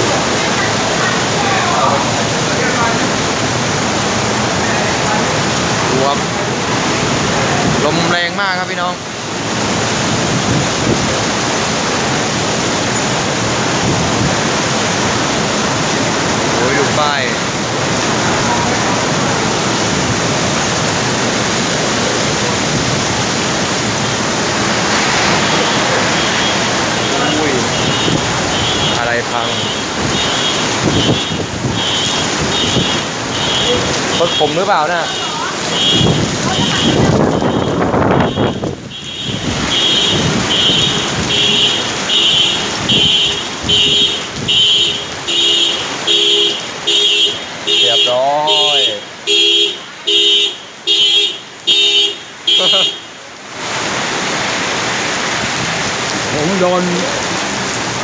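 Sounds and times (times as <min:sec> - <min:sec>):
storm wind blowing hard: 0:00.0 - 0:08.3, 0:09.3 - 0:34.3, 0:35.5 - 0:45.4
car alarm beeping: 0:26.1 - 0:34.5, 0:35.1 - 0:53.1.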